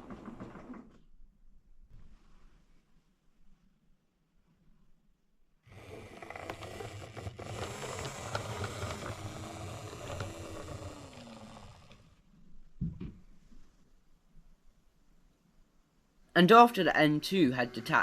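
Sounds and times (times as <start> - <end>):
model train rumbling on track: 5.7 - 12.0
faint motor whine: 5.7 - 12.2.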